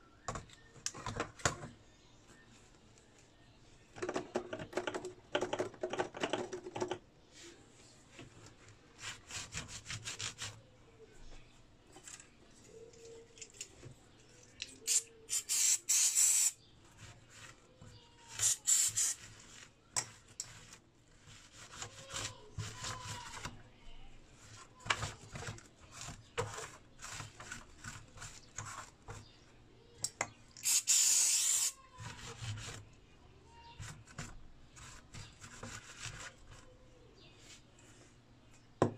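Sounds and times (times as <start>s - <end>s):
hissing bursts: 30.6s - 31.8s.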